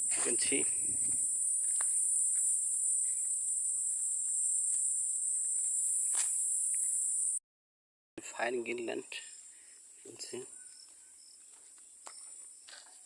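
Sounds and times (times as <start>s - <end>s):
insect chorus droning: 0.0s - 7.4s, 8.3s - 13.0s.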